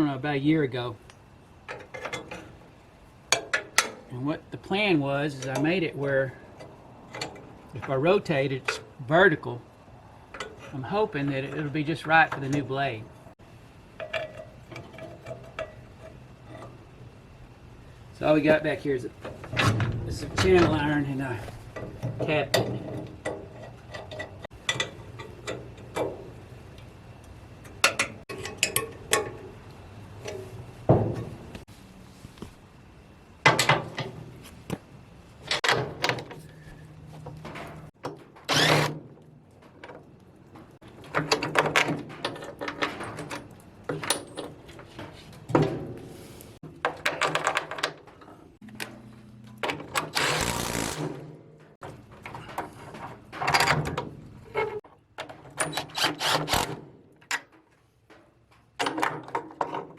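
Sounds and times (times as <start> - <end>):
metal tools clanking: 27.6 - 29.6.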